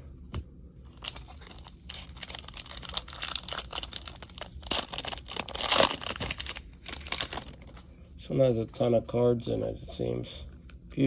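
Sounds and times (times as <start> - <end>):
wrapper being torn and crumpled: 0.9 - 7.8.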